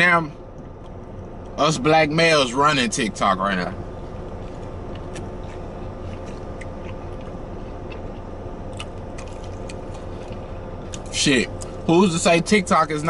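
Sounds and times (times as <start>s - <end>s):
low hum in car cabin: 0.0s - 13.0s
burger being chewed: 3.5s - 11.9s.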